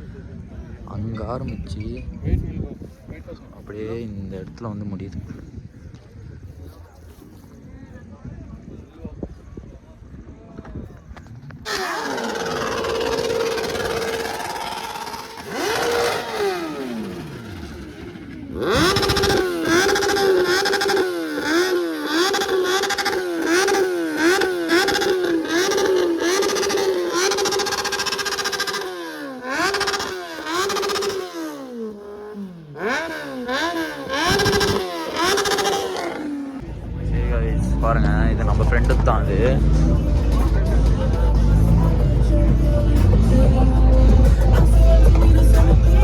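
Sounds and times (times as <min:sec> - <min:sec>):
motorcycle engine revving: 0:11.2 - 0:46.0.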